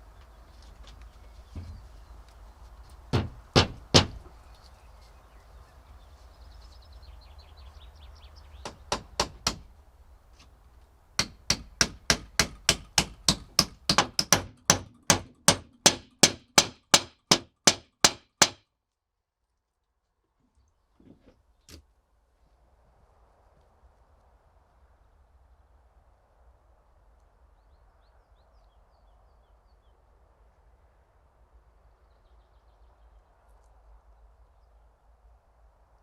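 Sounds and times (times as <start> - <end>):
hammer striking nails: 3.1 - 4.3, 8.6 - 9.7, 11.2 - 18.6.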